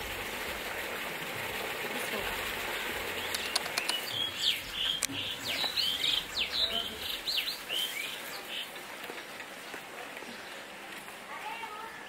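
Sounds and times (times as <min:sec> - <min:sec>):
small birds chirping: 0:02.2 - 0:10.8.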